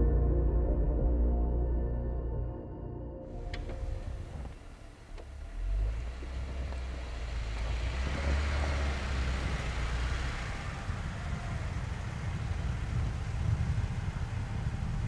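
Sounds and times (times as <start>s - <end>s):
car engine rumble: 3.3s - 15.0s
road noise: 3.3s - 15.0s.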